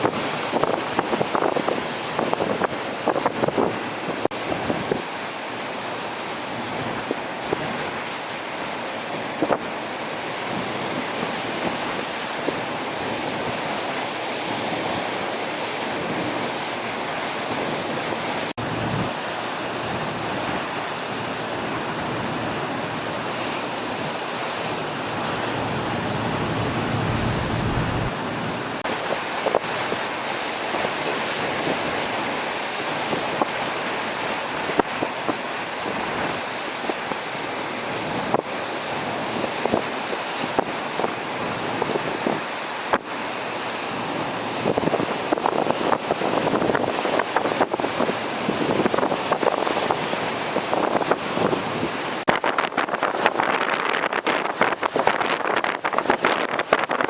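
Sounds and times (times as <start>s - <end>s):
surf washing onto beach: 0.0s - 57.0s
wind buffeting microphone: 17.6s - 30.1s.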